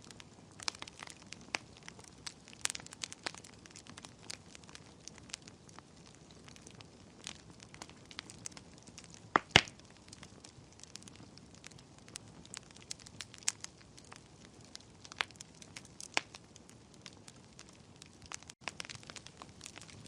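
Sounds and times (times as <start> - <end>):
wood fire crackling: 0.0 - 20.0
loud pop of fire: 9.3 - 9.8.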